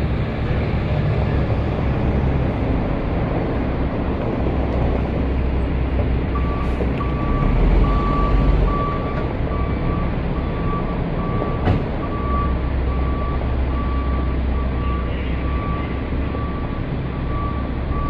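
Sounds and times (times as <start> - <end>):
diesel engine running: 0.0 - 18.0
reversing alarm beeping: 6.4 - 18.0.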